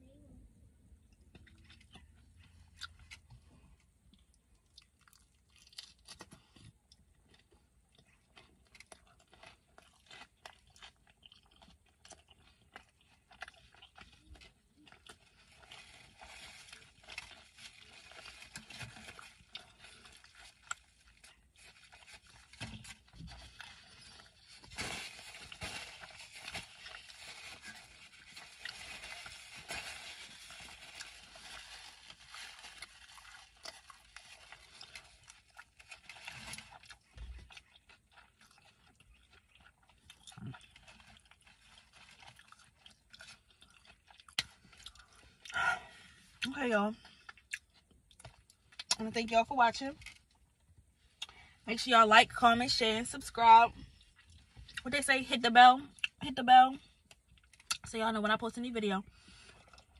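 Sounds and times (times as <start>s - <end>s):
chewing with mouth clicks: 1.0s - 24.7s, 30.2s - 49.0s, 53.8s - 54.8s, 56.8s - 57.9s.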